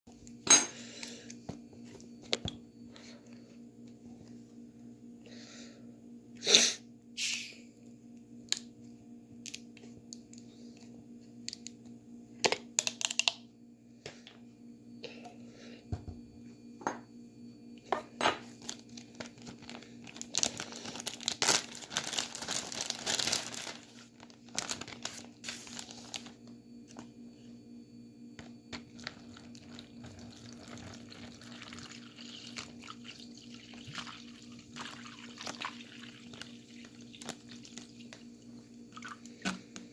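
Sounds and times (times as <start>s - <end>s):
steady low hum: 0.1s - 39.9s
plastic bag crinkling: 18.5s - 26.4s.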